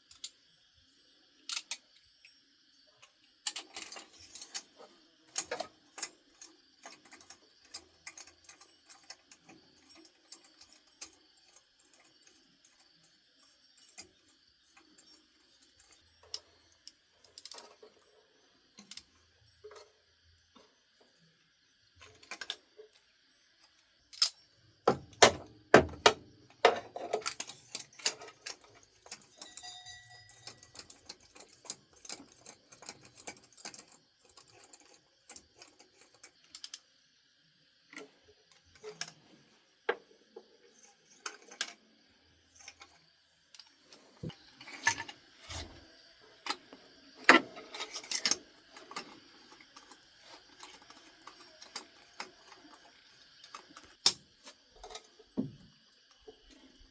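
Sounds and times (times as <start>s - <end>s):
metal tools and car parts clanking: 24.2s - 35.0s, 44.2s - 45.8s, 46.4s - 55.6s.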